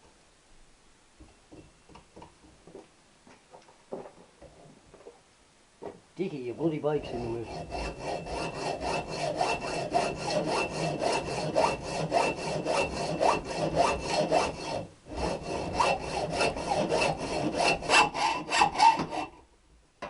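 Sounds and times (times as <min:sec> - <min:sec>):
hacksaw cutting metal pipe: 0:07.0 - 0:19.4.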